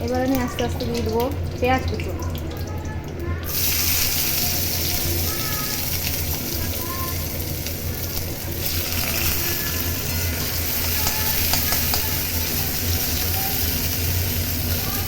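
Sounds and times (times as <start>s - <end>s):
exhaust fan hum: 0.0s - 15.0s
onion sizzling in hot oil: 0.0s - 15.0s
spatula clicking against pan: 10.8s - 12.5s.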